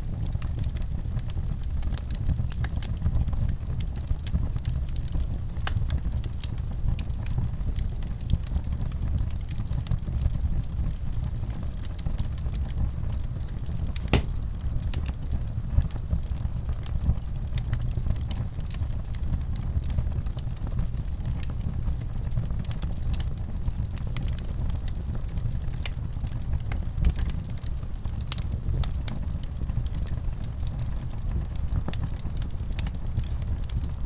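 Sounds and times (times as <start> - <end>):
wood fire crackling: 14.0 - 14.8.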